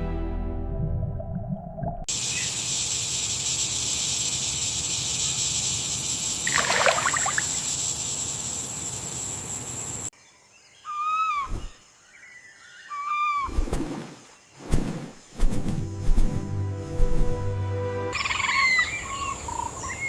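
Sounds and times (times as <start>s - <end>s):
forest ambience hiss: 2.1s - 20.0s
bird chirps: 18.2s - 20.0s.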